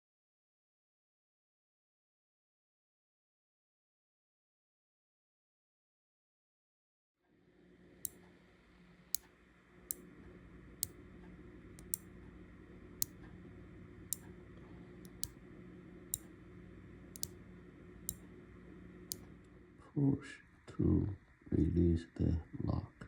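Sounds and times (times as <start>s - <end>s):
low steady hum: 7.4s - 23.0s
small switch clicking: 11.8s - 12.1s, 15.0s - 15.4s, 16.1s - 16.3s, 17.1s - 17.4s, 18.0s - 18.3s.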